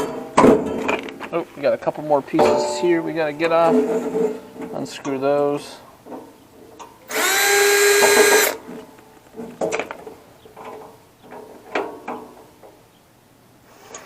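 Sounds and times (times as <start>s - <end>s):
power drill unscrewing: 7.1s - 8.6s.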